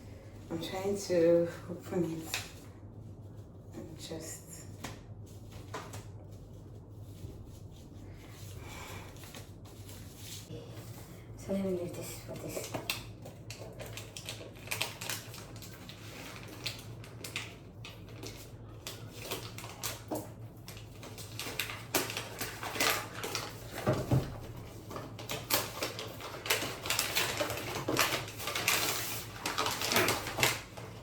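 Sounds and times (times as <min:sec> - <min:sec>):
wrapping paper crinkling: 0:12.4 - 0:31.0.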